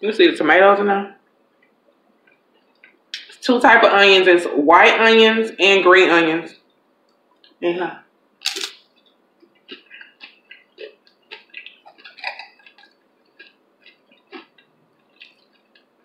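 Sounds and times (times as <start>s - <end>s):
crunching tortilla chip: 8.4s - 8.8s
wet mouth clicks: 8.4s - 8.8s, 9.4s - 15.9s.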